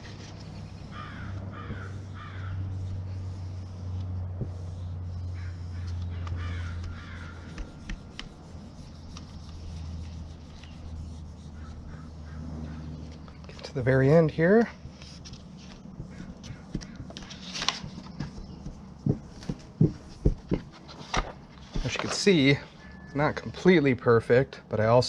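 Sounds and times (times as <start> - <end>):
steady low hum: 0.0 - 25.0
bird calls: 0.8 - 2.8, 5.0 - 7.9, 10.6 - 13.6, 16.0 - 18.9.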